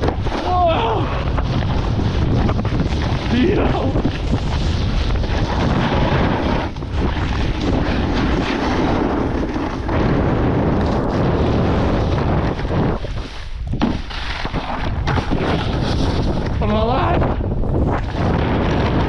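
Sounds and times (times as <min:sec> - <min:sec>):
snowboard rushing over snow: 0:00.0 - 0:19.0
wind buffeting microphone: 0:00.0 - 0:19.0.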